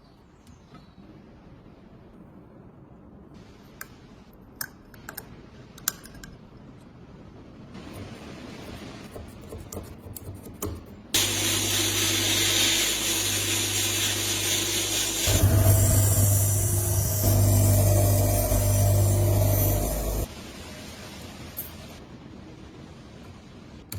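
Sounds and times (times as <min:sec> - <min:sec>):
electric power tool grinding: 0:11.2 - 0:20.3.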